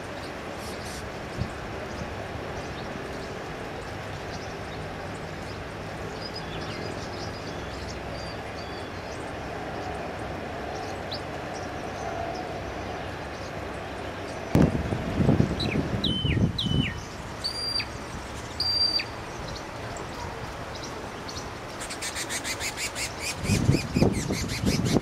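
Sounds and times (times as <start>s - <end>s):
high bird chirps: 15.6s - 19.6s.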